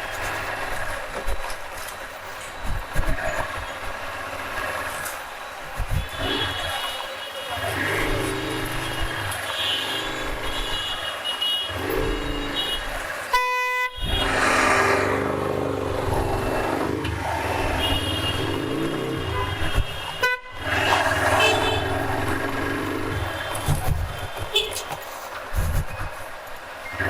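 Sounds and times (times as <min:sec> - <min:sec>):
traffic engines and road noise: 0:00.0 - 0:27.0
vehicle horns honking: 0:05.9 - 0:14.6, 0:16.1 - 0:25.0.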